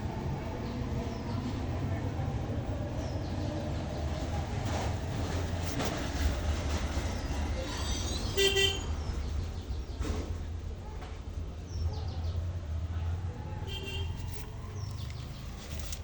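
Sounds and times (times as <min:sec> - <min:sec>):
low rumble of street traffic: 0:00.0 - 0:16.0
vehicle horn toot: 0:08.3 - 0:08.9, 0:13.7 - 0:14.3.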